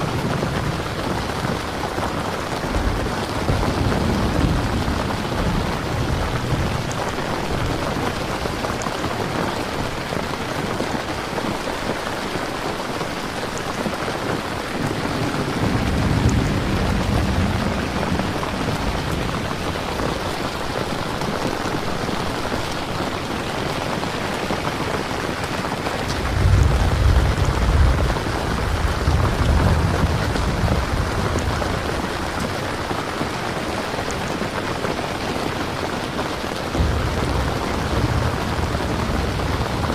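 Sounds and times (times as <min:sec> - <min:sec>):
low rolls of thunder: 0:00.0 - 0:10.5, 0:14.4 - 0:22.6, 0:24.7 - 0:33.8, 0:36.7 - 0:39.9
steady rain falling: 0:00.0 - 0:39.9.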